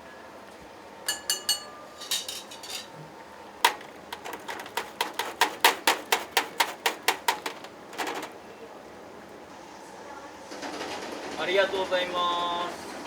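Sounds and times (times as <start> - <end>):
crockery and utensils clinking: 1.1 - 3.0
fast sharp knocks: 3.6 - 8.4.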